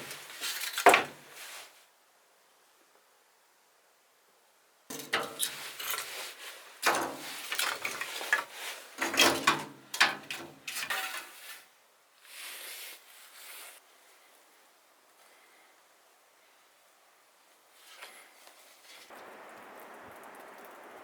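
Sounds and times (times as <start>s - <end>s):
objects knocking and scraping: 4.9s - 11.4s.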